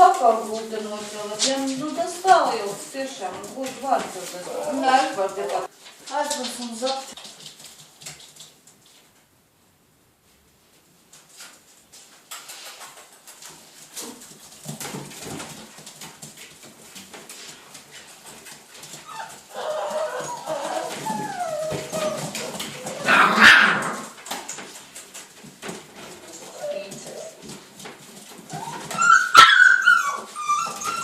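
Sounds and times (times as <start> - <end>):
scratching and rustling: 0.0 - 9.3, 10.2 - 31.0
puppies whimpering and whining: 4.2 - 5.7, 19.0 - 23.2, 26.3 - 27.5, 28.4 - 31.0.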